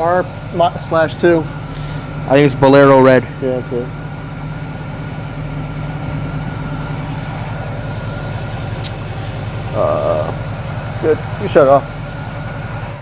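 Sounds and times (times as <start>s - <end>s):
car engine idling: 0.0s - 13.0s
sharp high click: 8.8s - 9.0s.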